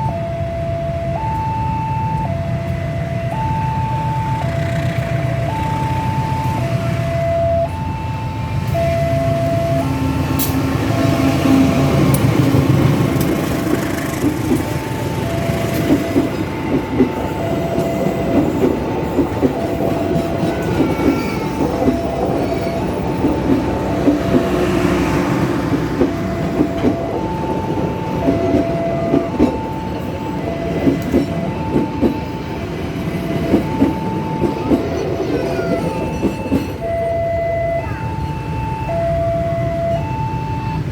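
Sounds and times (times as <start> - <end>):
train wheels clacking over rails: 8.6 - 37.0
two-note crossing signal beep: 8.8 - 10.0.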